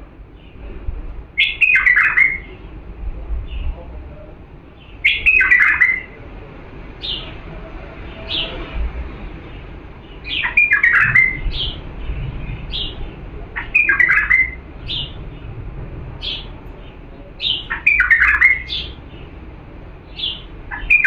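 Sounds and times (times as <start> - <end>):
bird singing whistled notes: 1.4 - 2.6, 5.0 - 6.2, 10.0 - 15.2, 16.2 - 19.3, 20.1 - 21.0.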